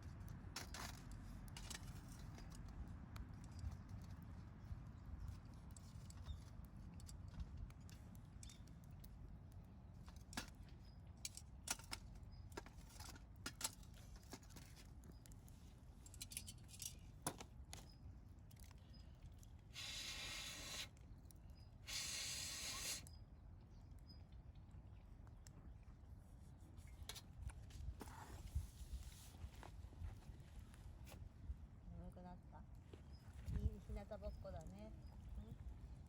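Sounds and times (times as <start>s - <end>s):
campfire wood crackling: 0.1s - 23.1s
short hisses: 19.8s - 20.9s, 21.9s - 23.0s.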